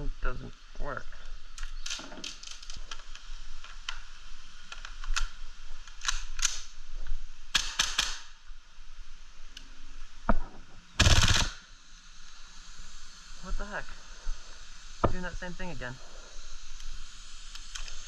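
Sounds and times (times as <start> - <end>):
airsoft rifle clicks: 1.5 - 6.8, 7.5 - 8.4, 11.0 - 11.6.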